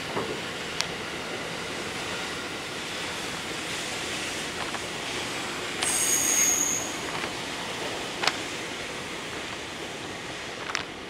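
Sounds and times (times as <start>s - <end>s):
train wheels running on track: 0.0s - 11.0s
high-pitched wheel squeal: 5.8s - 7.1s.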